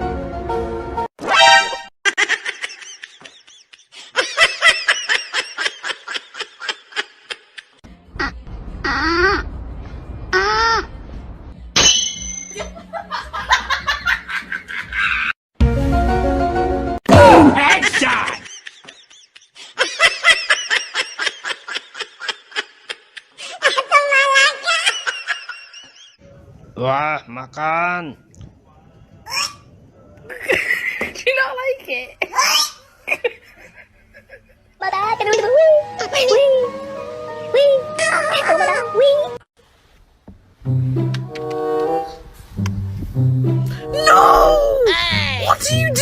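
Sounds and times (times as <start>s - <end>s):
person laughing: 17.5s - 23.0s.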